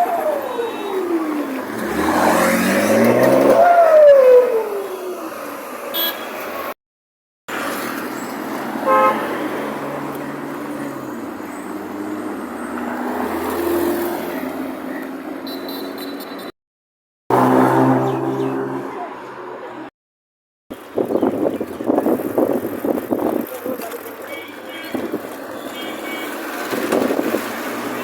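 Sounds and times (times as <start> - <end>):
road traffic: 0.0 - 6.8, 7.5 - 16.6, 17.3 - 19.9, 20.7 - 28.0
car horn tooting: 5.9 - 6.4, 8.8 - 9.3, 24.2 - 26.6.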